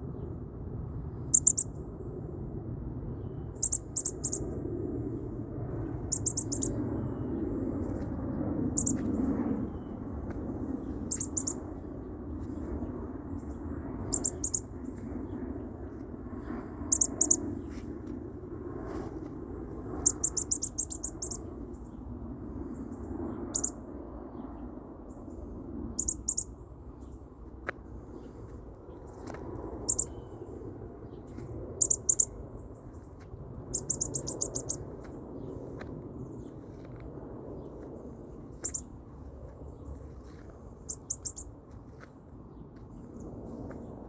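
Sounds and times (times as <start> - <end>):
baby bird cheeping: 1.3 - 1.7, 3.6 - 4.4, 6.0 - 6.8, 8.7 - 9.1, 11.0 - 11.7, 14.0 - 14.7, 16.8 - 17.4, 20.0 - 21.4, 23.6 - 23.8, 26.0 - 26.6, 29.8 - 30.2, 31.8 - 32.3, 33.7 - 35.0, 38.5 - 38.9, 40.8 - 41.5.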